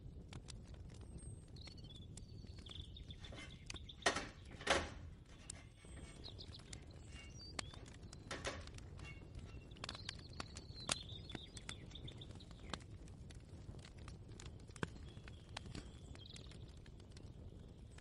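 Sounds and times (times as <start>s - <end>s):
bird chirps: 1.5s - 4.7s, 5.4s - 12.7s
small clicks and clatter: 2.7s - 17.2s.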